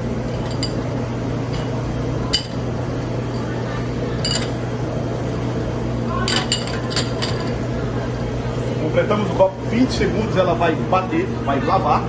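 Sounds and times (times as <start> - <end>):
glass washer running: 0.0 - 5.4, 6.1 - 12.0
glasses clinking: 0.4 - 0.8, 1.5 - 2.6, 4.2 - 4.6, 6.3 - 7.6.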